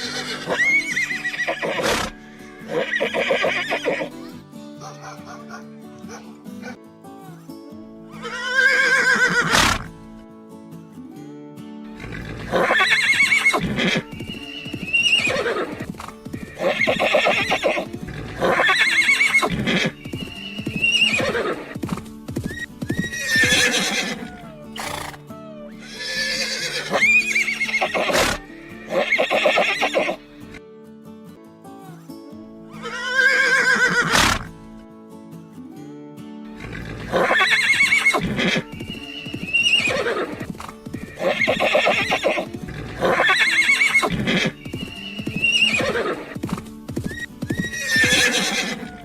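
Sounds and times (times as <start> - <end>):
horse neighing: 0.0 - 4.1, 8.2 - 9.9, 12.0 - 14.1, 14.8 - 19.9, 20.8 - 21.7, 23.0 - 30.2, 32.8 - 34.5, 36.6 - 38.7, 39.3 - 44.5, 45.3 - 46.4, 47.5 - 49.0
background music with held tones: 34.5 - 49.0.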